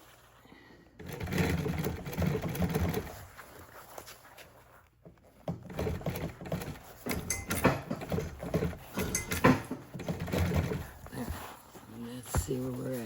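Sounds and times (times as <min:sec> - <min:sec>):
hands handling fabric: 0:00.0 - 0:13.0.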